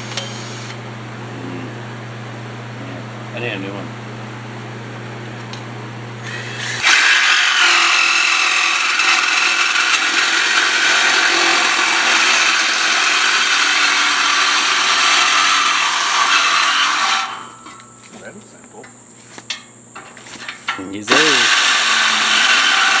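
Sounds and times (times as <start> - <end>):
reciprocating saw cutting metal pipe: 6.2 - 17.7, 21.1 - 23.0.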